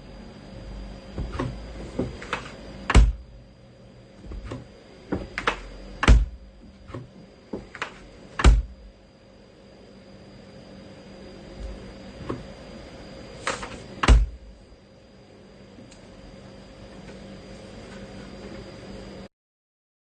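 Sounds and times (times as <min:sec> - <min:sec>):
loud deep thuds: 0:02.9 - 0:03.3, 0:06.0 - 0:07.0, 0:08.4 - 0:08.9, 0:14.0 - 0:14.5.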